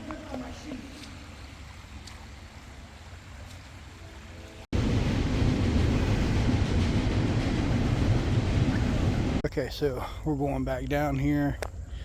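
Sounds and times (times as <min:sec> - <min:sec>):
faint outdoor hush: 0:00.0 - 0:12.0
wind buffeting microphone: 0:04.7 - 0:10.3.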